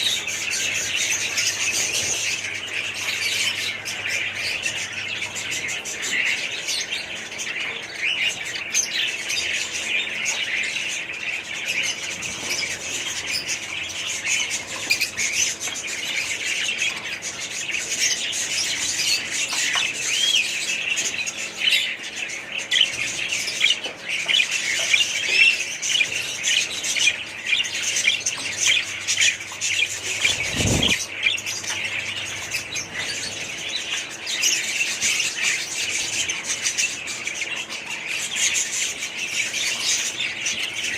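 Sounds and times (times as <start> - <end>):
parrots chattering and chirping: 0.0 - 40.9.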